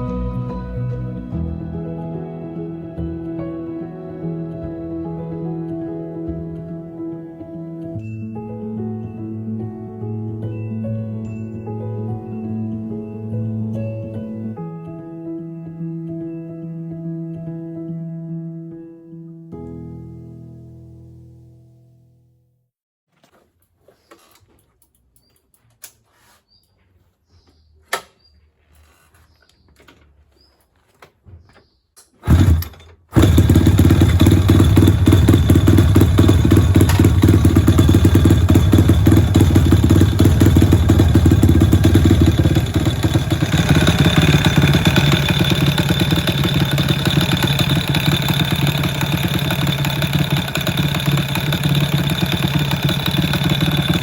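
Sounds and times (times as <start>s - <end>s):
motorcycle engine starting and running: 32.2s - 54.0s.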